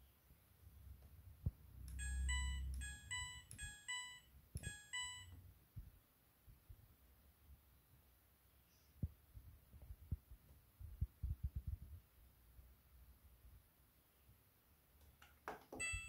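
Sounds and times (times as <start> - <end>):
electronic beeps: 1.9 - 5.4.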